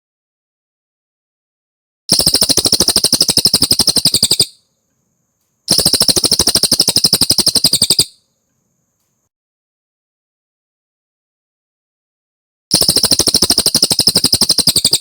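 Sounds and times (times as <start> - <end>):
songbird trilling: 2.1 - 4.6, 5.7 - 8.2, 12.8 - 15.0.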